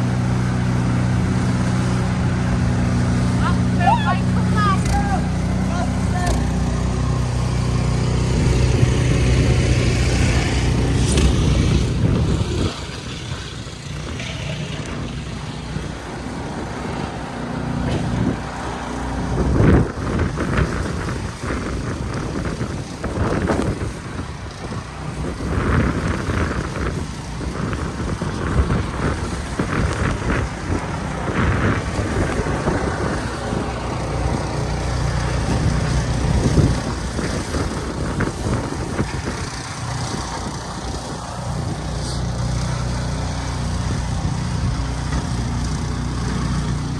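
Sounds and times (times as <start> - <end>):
vehicle engine running close: 0.0 - 46.9
vehicles passing: 0.0 - 46.9.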